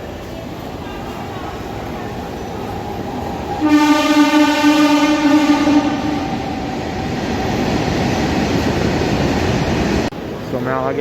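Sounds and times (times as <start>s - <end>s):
train rumbling on rails: 0.0s - 11.0s
train horn blast: 3.6s - 6.6s.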